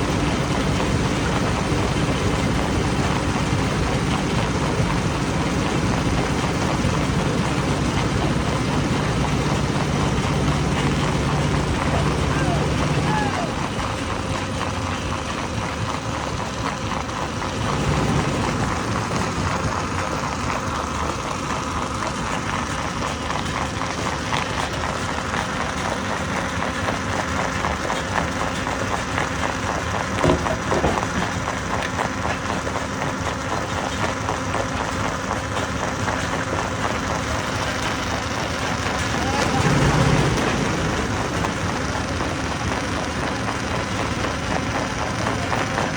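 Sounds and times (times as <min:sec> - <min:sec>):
stone crusher running: 0:00.0 - 0:45.9
rock rattling and clattering: 0:28.0 - 0:45.9
loud knocks: 0:30.1 - 0:31.8.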